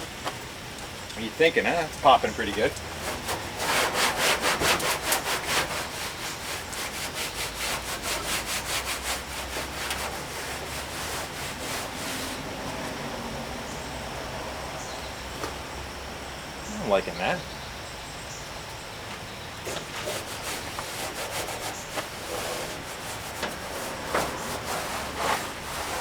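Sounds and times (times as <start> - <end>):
hand scrubbing metal panel: 1.3 - 13.0, 19.6 - 26.0.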